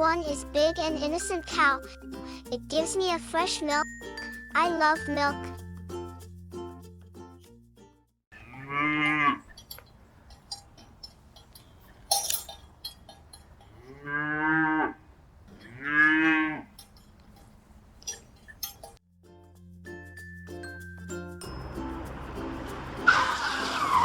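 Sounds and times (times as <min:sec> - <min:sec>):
cow mooing: 0:08.3 - 0:09.5, 0:13.8 - 0:15.0, 0:15.6 - 0:16.7.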